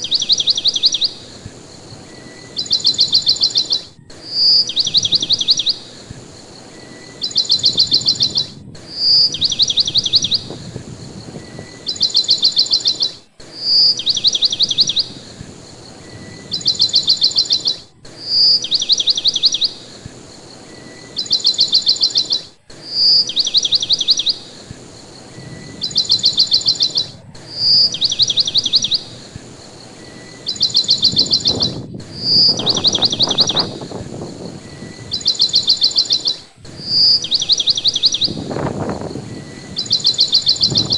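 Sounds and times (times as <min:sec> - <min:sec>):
bird song with chirping trills: 0:00.0 - 0:40.9
low rushing noise: 0:01.1 - 0:12.0, 0:14.5 - 0:18.3, 0:23.8 - 0:40.9.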